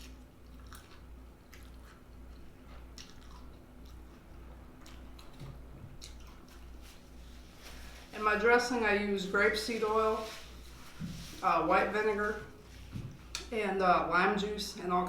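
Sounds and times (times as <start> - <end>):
person chewing food: 0.0 - 7.5
low steady hum: 0.0 - 15.0.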